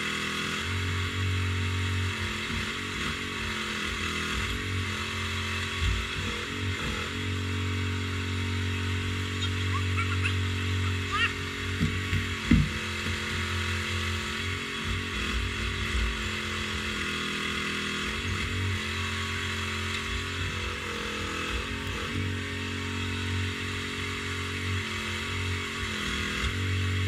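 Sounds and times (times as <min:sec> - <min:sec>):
excavator diesel engine running: 0:09.2 - 0:12.8.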